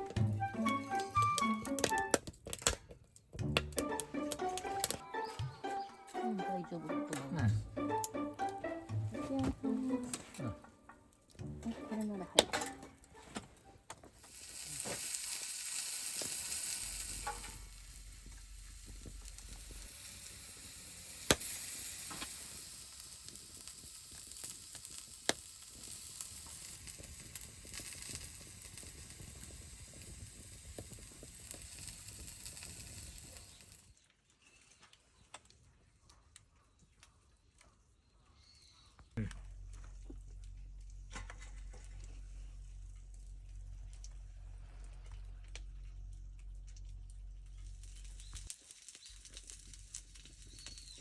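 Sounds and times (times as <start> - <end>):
sizzling hiss over fire: 0.0 - 2.6, 11.4 - 34.6, 47.5 - 51.0.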